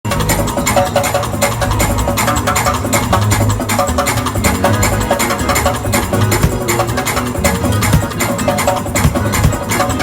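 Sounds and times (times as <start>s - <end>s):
drum kit played fast: 0.0s - 10.0s
other instruments: 0.1s - 10.0s.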